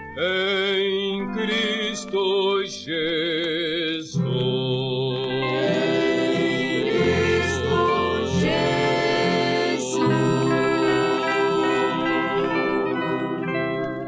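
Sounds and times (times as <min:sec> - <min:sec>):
hymn music with held chords: 0:00.0 - 0:14.0.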